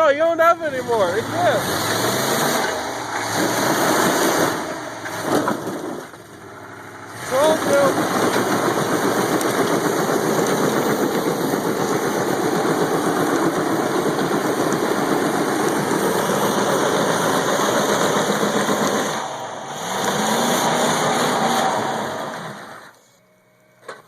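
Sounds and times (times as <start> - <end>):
truck engine revving high: 0.0 - 23.7.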